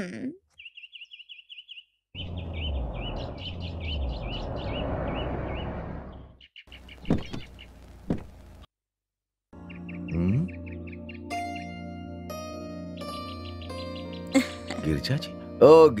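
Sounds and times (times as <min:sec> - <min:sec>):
small bird chirping: 0:00.5 - 0:08.4
sharp knocks: 0:07.0 - 0:07.5, 0:08.1 - 0:08.4.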